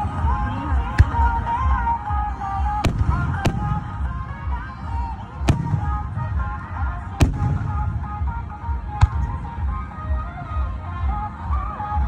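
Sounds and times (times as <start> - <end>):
fireworks bangs: 2.8 - 4.0, 5.4 - 6.5, 7.2 - 9.5.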